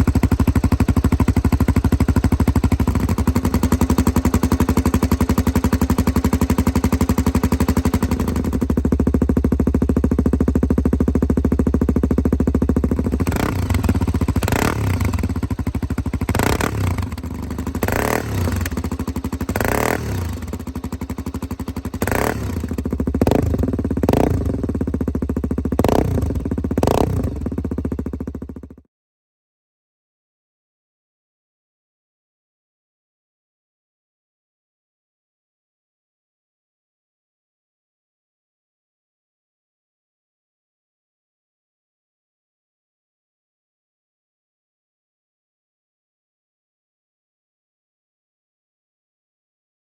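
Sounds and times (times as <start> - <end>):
motorcycle engine idling and revving: 0.0 - 28.9.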